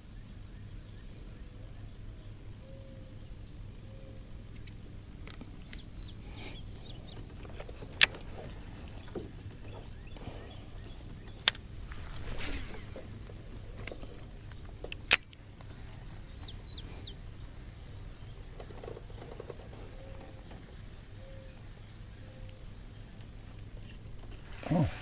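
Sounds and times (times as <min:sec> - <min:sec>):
low steady hum: 0:00.0 - 0:25.0
sharp clicks: 0:13.8 - 0:15.7.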